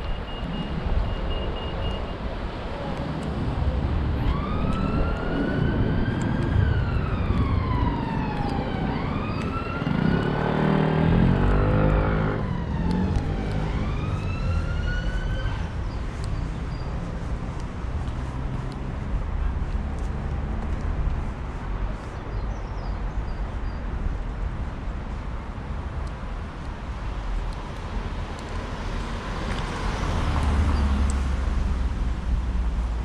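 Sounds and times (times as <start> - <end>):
street traffic: 0.0 - 33.0
emergency siren wailing: 4.0 - 15.8
vehicle engine passing: 9.6 - 15.2.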